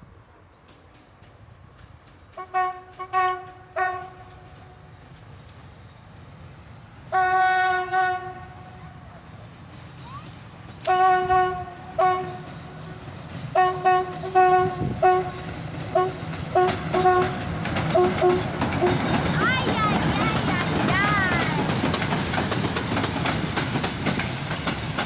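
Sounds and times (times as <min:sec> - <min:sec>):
train rumbling: 0:00.0 - 0:25.0
locomotive horn blasts: 0:02.4 - 0:04.3, 0:07.1 - 0:08.6, 0:10.8 - 0:12.5, 0:13.6 - 0:19.1.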